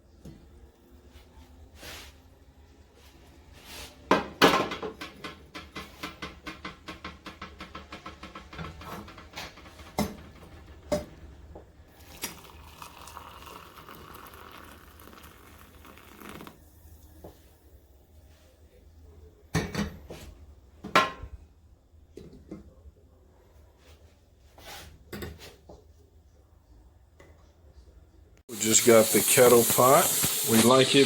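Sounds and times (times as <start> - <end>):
kitchenware clinking and knocking: 4.1 - 11.2, 19.5 - 20.2, 20.8 - 21.4
faint hiss: 28.5 - 31.0.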